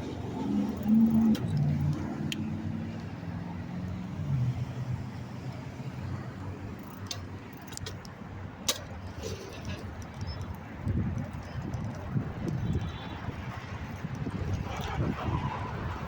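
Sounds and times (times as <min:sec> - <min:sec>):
motor vehicles passing: 0:00.0 - 0:16.0.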